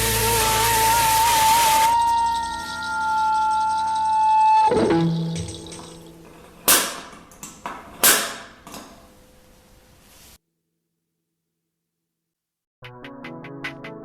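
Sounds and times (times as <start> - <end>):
held synth tone: 0.0 - 6.3
low synth notes: 0.0 - 6.3
sharp electronic hits: 1.9 - 6.9.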